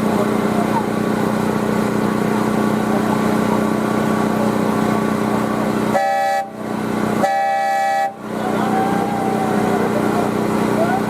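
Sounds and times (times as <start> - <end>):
diesel locomotive engine running: 0.0 - 11.0
train horn blasts: 5.9 - 6.6, 7.2 - 8.2.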